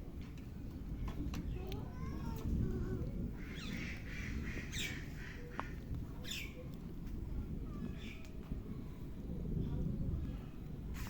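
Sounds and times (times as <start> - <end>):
steady low rumble: 0.0 - 11.0
high falling bird calls: 3.4 - 6.6.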